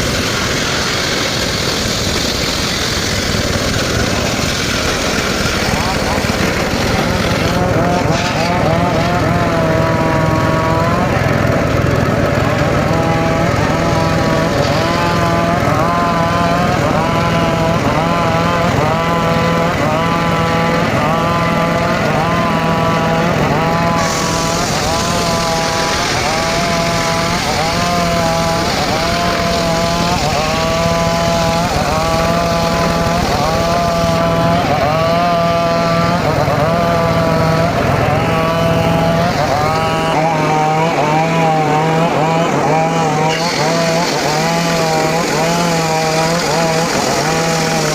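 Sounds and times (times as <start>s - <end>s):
circular saw cutting wood: 0.0s - 47.9s.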